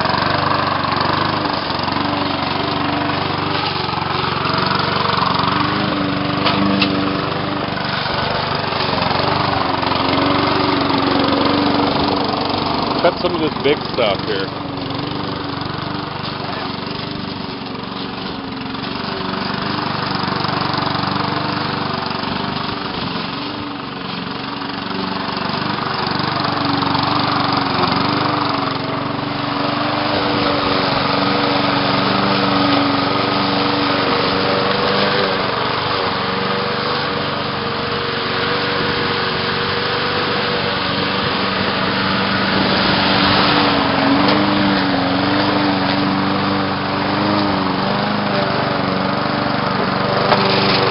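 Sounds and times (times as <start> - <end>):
lawn mower engine cutting weeds: 0.0 - 50.9.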